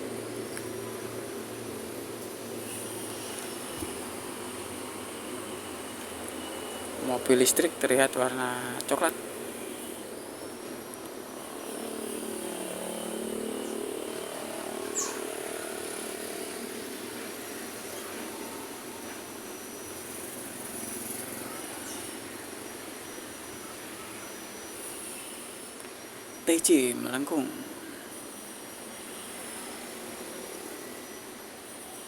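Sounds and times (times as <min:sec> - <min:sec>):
road traffic passing: 0:11.4 - 0:18.4.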